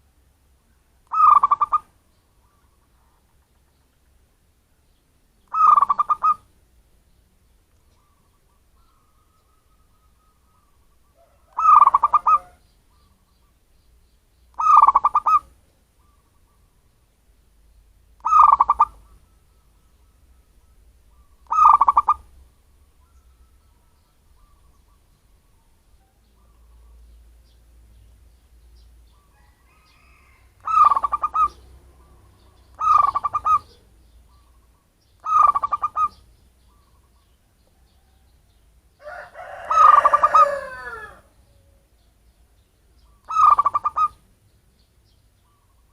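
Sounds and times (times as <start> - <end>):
faint bird calls: 0.0 - 4.2, 4.9 - 6.6, 7.2 - 45.9
dove cooing: 1.1 - 3.3, 5.5 - 6.5, 7.9 - 13.3, 14.6 - 16.7, 18.2 - 27.0, 29.1 - 38.2, 39.0 - 42.0, 43.0 - 44.2.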